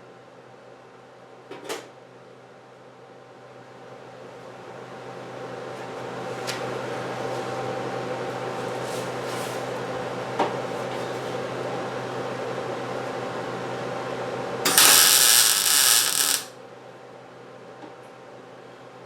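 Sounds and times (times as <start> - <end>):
power tool hissing on sheet metal: 14.7 - 16.5
steady machine hum: 14.7 - 16.5.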